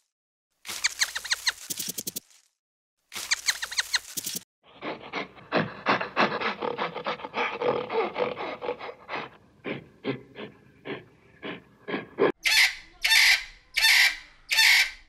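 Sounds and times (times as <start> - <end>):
gorilla crunching plant stem: 0.6 - 2.5, 3.1 - 4.4.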